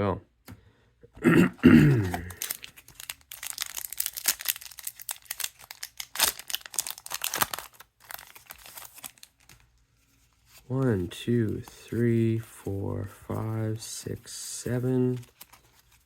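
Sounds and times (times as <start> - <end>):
wrapper tearing and crinkling: 1.9 - 9.7, 15.1 - 16.0.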